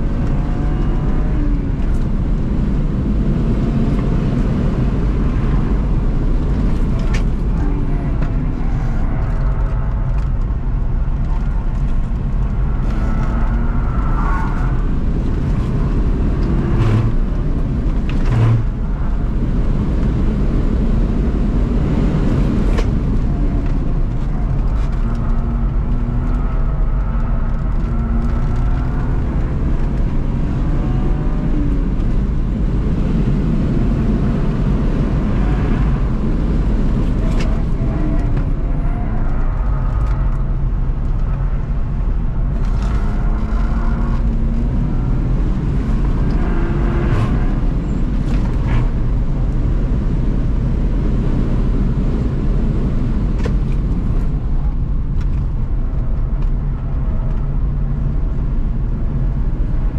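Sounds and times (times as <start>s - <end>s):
car engine revving: 0.0s - 55.6s
road and wind noise: 0.0s - 59.9s.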